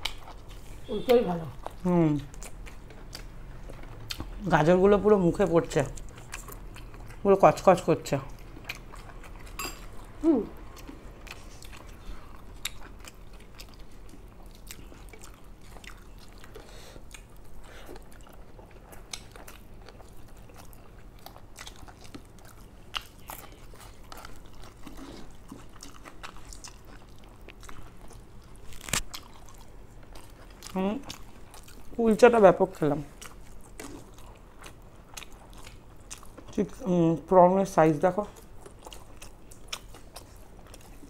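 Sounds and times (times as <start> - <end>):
chewing and crunching food: 0.0 - 41.0
person humming: 10.2 - 10.6.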